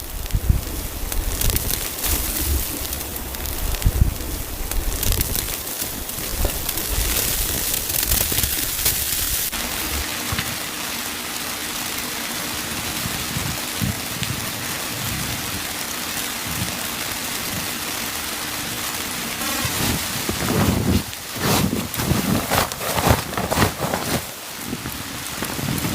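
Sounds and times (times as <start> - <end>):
rain hissing on a surface: 0.0 - 25.9.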